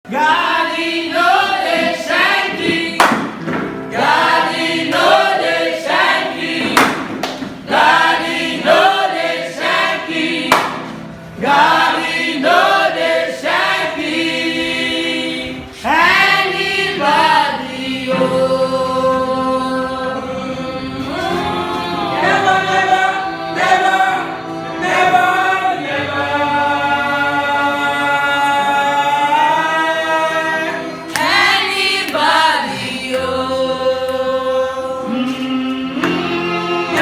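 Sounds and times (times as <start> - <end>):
gospel choir singing: 0.1 - 37.0
sharp percussive hits: 10.4 - 11.0.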